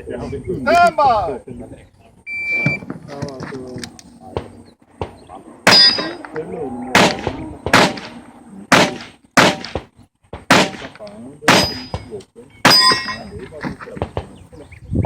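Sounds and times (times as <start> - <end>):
metallic ring: 5.7 - 6.3, 11.5 - 13.4
handgun shots: 7.0 - 8.1, 8.7 - 9.8, 10.5 - 12.1.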